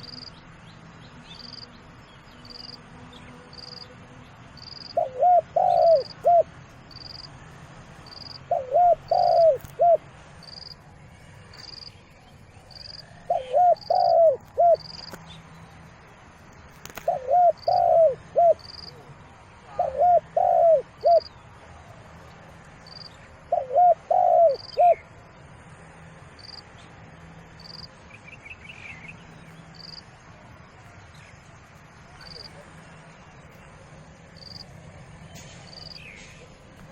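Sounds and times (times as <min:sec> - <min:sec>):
dove cooing: 0:04.8 - 0:06.5, 0:08.0 - 0:10.1, 0:13.0 - 0:15.1, 0:16.8 - 0:21.3, 0:22.9 - 0:25.1.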